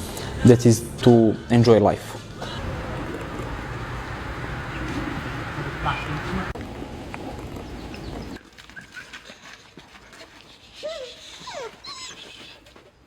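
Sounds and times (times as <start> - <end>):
steady rushing noise: 0.0 - 8.4
dog whining: 10.8 - 12.7.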